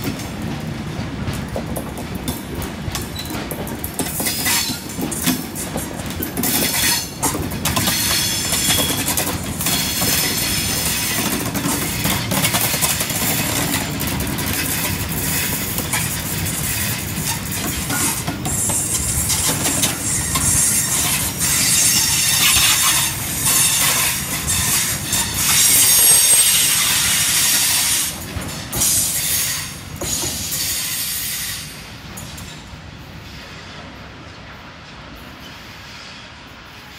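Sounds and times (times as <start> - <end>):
freight wagons clattering over rails: 0.0 - 29.2
train rumble: 0.0 - 36.9.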